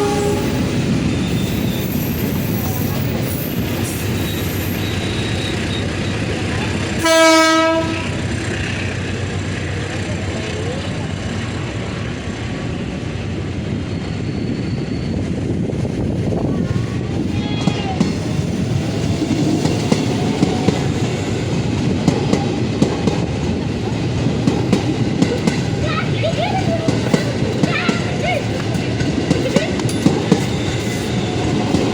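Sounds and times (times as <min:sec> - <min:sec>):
train horn blast: 0:00.0 - 0:00.8, 0:07.0 - 0:08.3
train rumbling past: 0:00.0 - 0:31.9.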